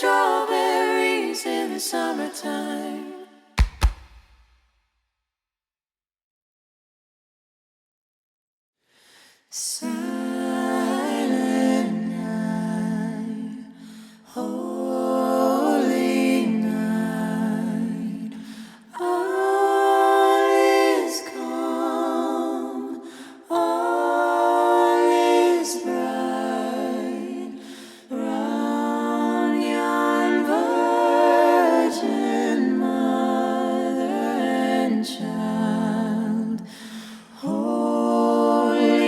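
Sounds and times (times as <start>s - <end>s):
a cappella humming with vibrato: 0.0s - 3.4s, 9.5s - 39.0s
singer breathing: 13.8s - 14.2s, 18.4s - 18.8s, 27.6s - 28.1s, 36.7s - 37.4s.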